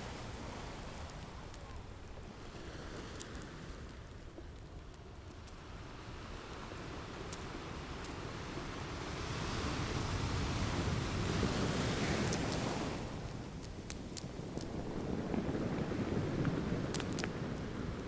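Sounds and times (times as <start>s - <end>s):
faint fireplace crackles: 13.6s - 18.0s.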